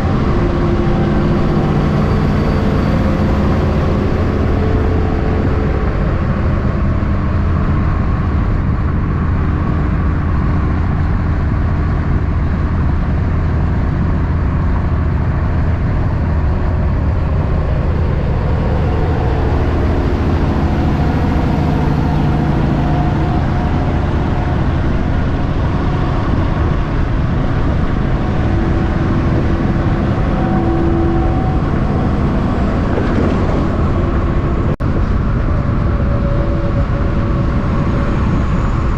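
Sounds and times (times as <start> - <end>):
trucks rumbling in traffic: 0.0 - 38.9.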